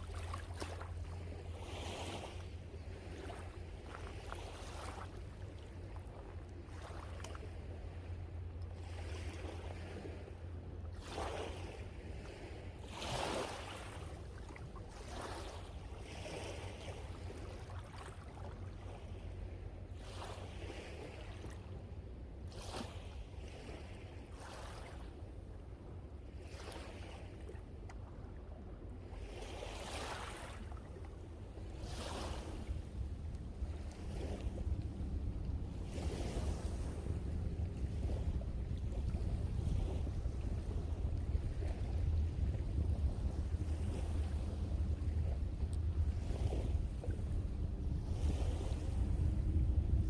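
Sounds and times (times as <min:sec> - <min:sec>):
sea waves breaking: 0:00.0 - 0:50.0
low rumble: 0:32.8 - 0:50.0.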